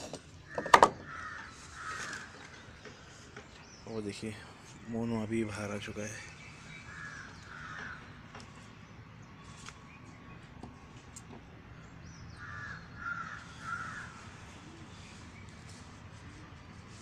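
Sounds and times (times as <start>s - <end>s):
bird giving rough calls: 0.3s - 3.2s, 6.7s - 8.2s, 12.3s - 15.2s.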